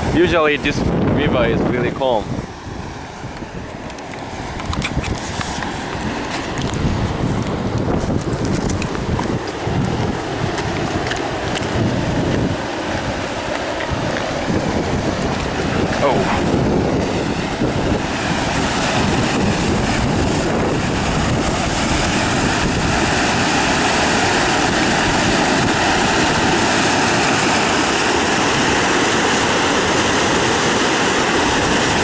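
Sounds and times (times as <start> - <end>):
river water rushing: 2.4 - 32.0.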